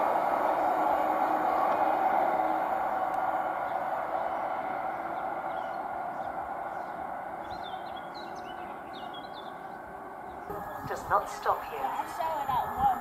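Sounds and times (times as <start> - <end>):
small birds chirping: 5.1 - 13.0.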